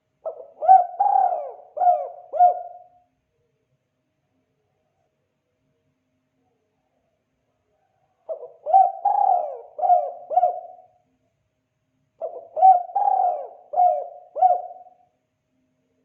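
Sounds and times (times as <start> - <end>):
dove cooing: 0.2 - 3.0, 8.2 - 11.0, 12.2 - 15.1.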